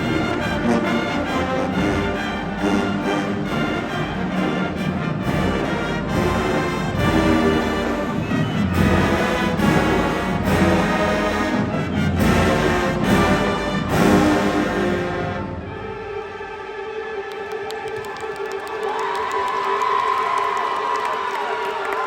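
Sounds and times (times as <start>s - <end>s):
brass chords: 0.0s - 17.2s.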